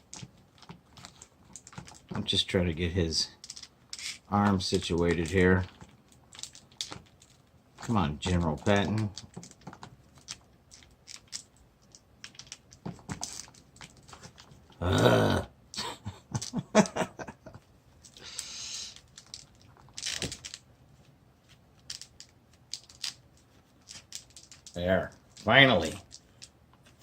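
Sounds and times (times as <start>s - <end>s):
grunt-like voice: 14.8s - 15.5s.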